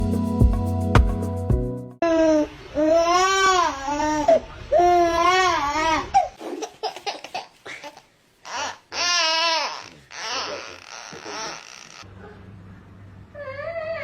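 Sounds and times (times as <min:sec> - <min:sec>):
young child wailing: 0:08.5 - 0:12.0.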